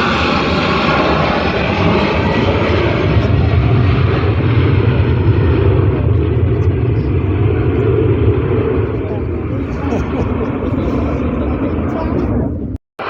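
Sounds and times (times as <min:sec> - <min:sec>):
deep engine rumble: 0:00.0 - 0:12.8
airliner engine noise: 0:00.0 - 0:13.0.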